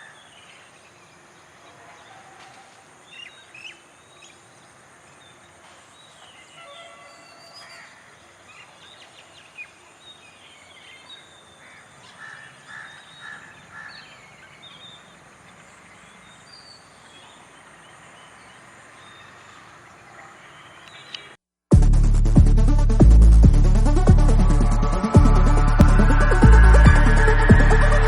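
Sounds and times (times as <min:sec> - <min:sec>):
birds chirping and calling: 0:00.0 - 0:21.4
steady background hiss: 0:00.0 - 0:21.4
birds squawking: 0:10.7 - 0:15.3.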